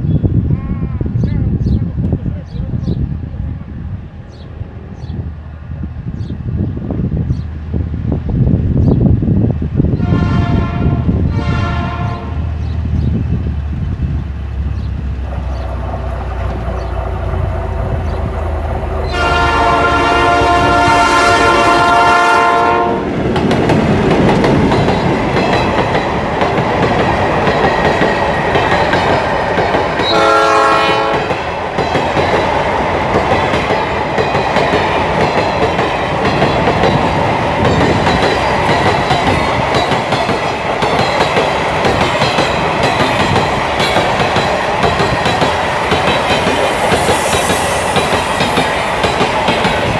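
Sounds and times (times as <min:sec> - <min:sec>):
locomotive horn blasts: 0:10.0 - 0:12.5, 0:19.1 - 0:23.1, 0:30.1 - 0:31.3
wagons clacking over rail joints: 0:23.1 - 0:49.9.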